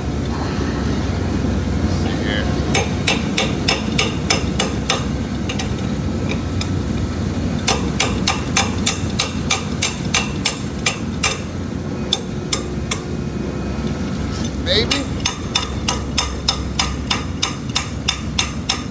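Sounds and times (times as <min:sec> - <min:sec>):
low machinery hum: 0:00.0 - 0:18.9
hammer tapping on metal valve: 0:02.6 - 0:13.1, 0:14.8 - 0:18.9.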